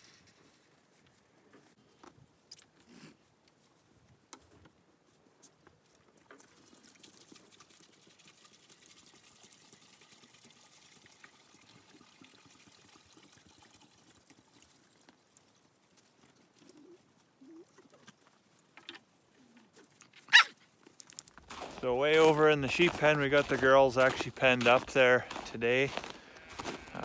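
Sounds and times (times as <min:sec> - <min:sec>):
water trickling: 0:06.4 - 0:15.6.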